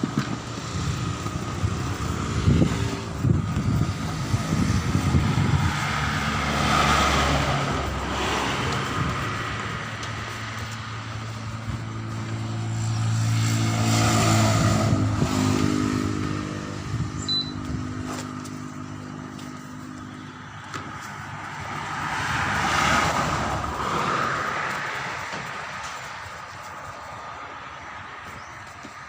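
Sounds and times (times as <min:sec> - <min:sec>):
vehicle engine passing by: 0:00.0 - 0:28.6
second vehicle approaching: 0:00.0 - 0:29.0.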